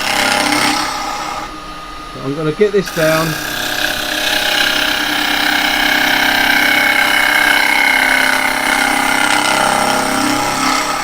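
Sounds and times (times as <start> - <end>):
tool scraping wood: 0.0 - 1.6, 2.8 - 11.0
wood lathe humming: 0.0 - 11.0.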